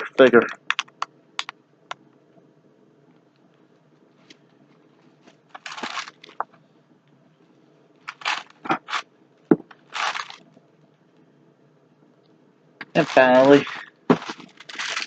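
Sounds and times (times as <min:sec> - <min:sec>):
plastic packaging crinkling: 0:05.2 - 0:06.5, 0:08.0 - 0:09.1, 0:09.7 - 0:10.6, 0:12.8 - 0:15.0.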